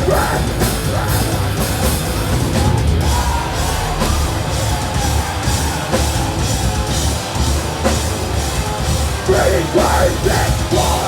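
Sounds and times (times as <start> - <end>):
person singing: 0.0 - 5.5, 9.2 - 11.0
metal band playing live: 0.0 - 11.0
pounding drums: 0.0 - 11.0.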